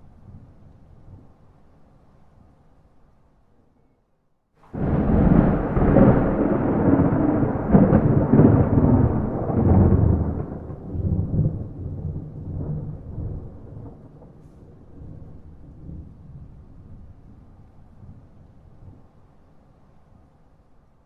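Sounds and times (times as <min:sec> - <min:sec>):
thunder rumbling: 0:04.7 - 0:17.4.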